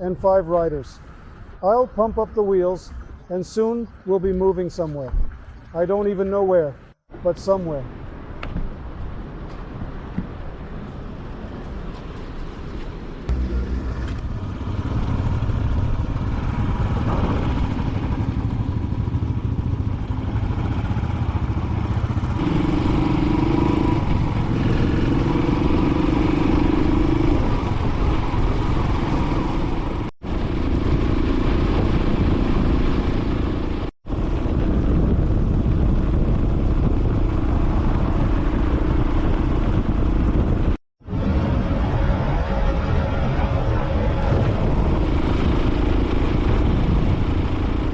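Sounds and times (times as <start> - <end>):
motorcycle engine running: 13.3 - 40.7.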